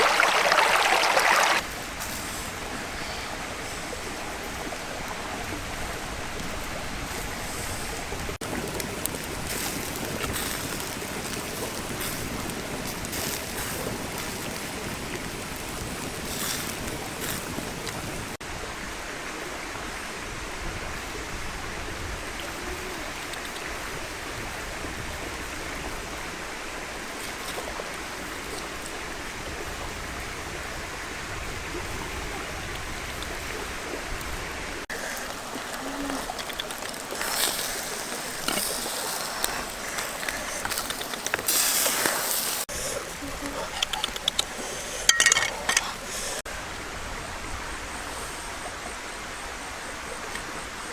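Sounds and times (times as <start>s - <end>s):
stream water rushing: 0.0s - 50.9s
brief crackles or splashes: 35.1s - 42.6s.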